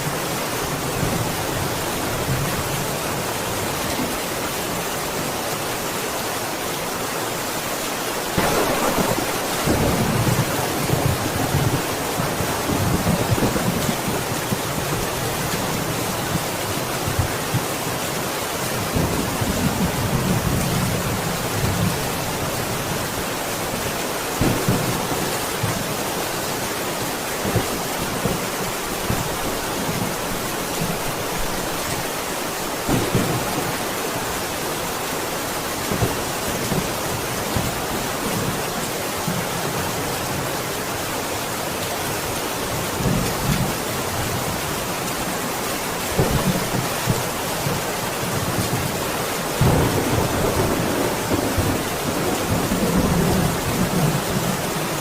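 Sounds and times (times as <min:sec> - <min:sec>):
heavy rain: 0:00.0 - 0:55.0
thunder rumbling: 0:08.3 - 0:16.6, 0:32.8 - 0:33.9, 0:49.6 - 0:54.6
thunder cracks: 0:08.4 - 0:13.7, 0:24.4 - 0:25.1, 0:32.9 - 0:33.7.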